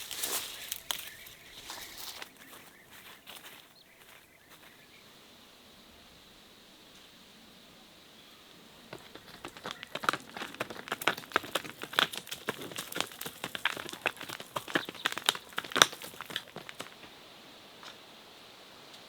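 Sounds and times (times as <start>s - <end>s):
crackling and crinkling clicks: 9.0s - 17.1s.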